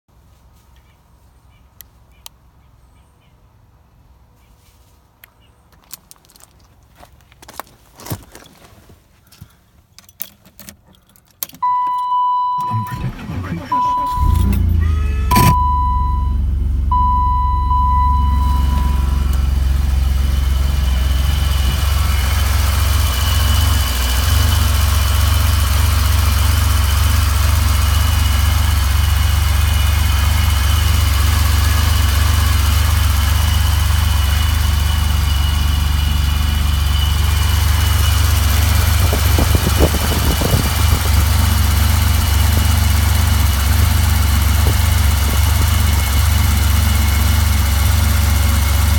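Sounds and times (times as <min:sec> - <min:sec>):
car engine idling: 0:11.6 - 0:48.9
high whine: 0:12.6 - 0:24.8
electronic chime beeping: 0:13.8 - 0:19.3.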